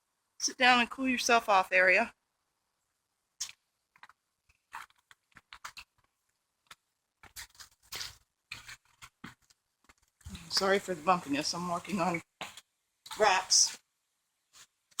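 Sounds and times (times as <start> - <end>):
footsteps scuffing: 7.2 - 13.8.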